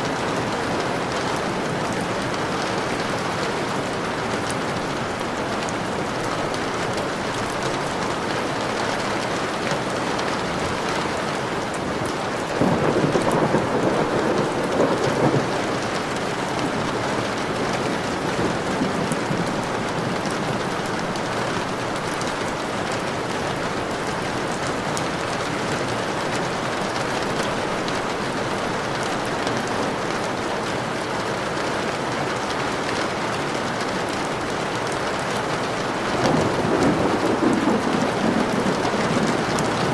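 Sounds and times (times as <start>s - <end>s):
steady rain: 0.0s - 39.9s
thunder rumble: 12.5s - 21.3s, 36.1s - 39.9s.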